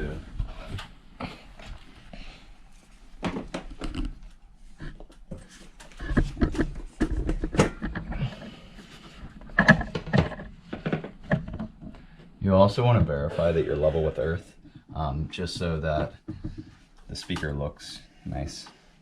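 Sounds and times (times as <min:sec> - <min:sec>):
speaker handling clicks and knocks: 0:03.2 - 0:04.3, 0:05.0 - 0:12.2.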